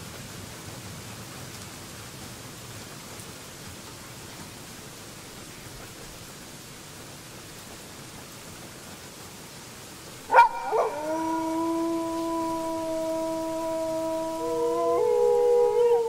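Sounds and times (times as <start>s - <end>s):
faint steady hiss: 0.0s - 16.0s
wolf howling: 10.3s - 16.0s.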